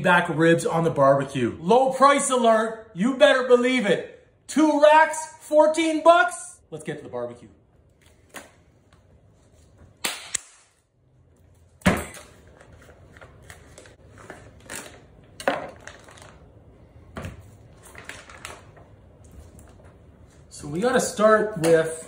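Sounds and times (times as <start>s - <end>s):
objects knocking and clattering: 14.6s - 16.4s.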